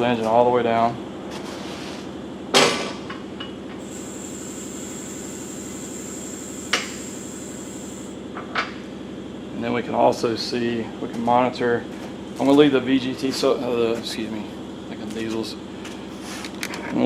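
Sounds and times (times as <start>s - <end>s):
steady shop hum: 3.6s - 9.5s
thin high whine: 3.8s - 8.2s.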